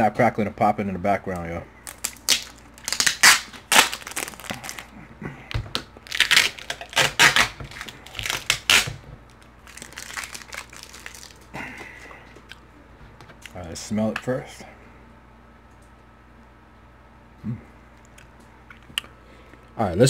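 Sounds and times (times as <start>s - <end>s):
loud crunching while chewing: 6.0s - 8.8s, 9.6s - 12.6s.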